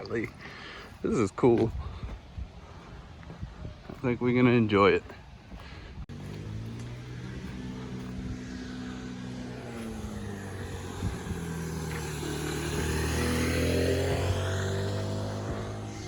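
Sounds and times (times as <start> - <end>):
vehicle engine approaching: 6.0 - 16.0.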